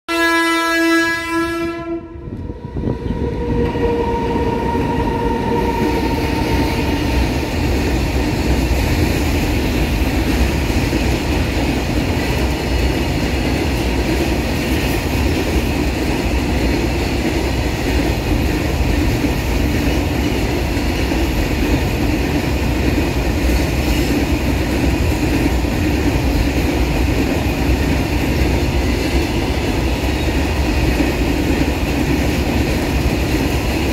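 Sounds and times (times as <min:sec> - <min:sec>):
locomotive horn: 0:00.1 - 0:07.2
freight train wheels clattering: 0:03.4 - 0:33.9.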